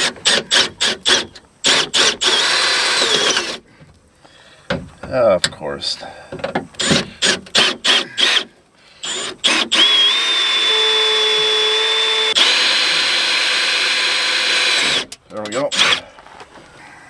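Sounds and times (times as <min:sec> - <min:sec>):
power drill drilling: 0:00.0 - 0:03.6, 0:06.8 - 0:16.1.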